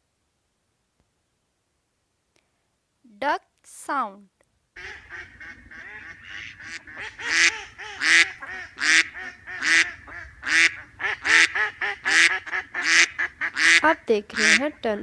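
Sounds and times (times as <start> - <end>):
ducks quacking: 4.8 - 15.0.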